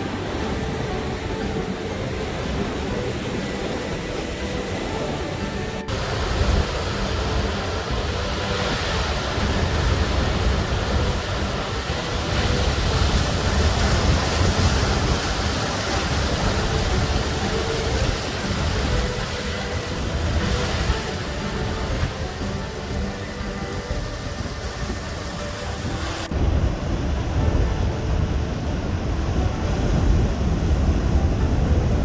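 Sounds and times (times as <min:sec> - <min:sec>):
ocean surf breaking: 0:00.0 - 0:32.0.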